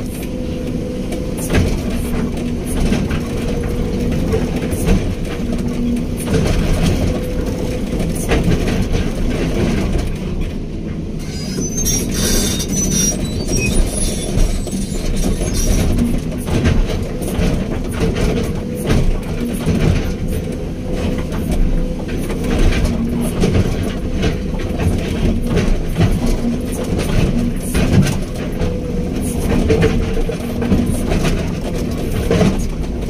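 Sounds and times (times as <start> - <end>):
diesel engine under load: 0.0 - 33.0
high-pitched metal squeals: 11.2 - 16.0.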